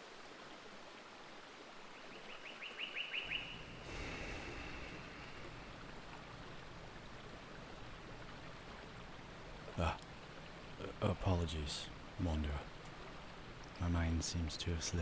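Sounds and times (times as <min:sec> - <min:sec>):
outdoor ambience hiss: 0:00.0 - 0:15.0
bird chirping call: 0:02.2 - 0:03.8.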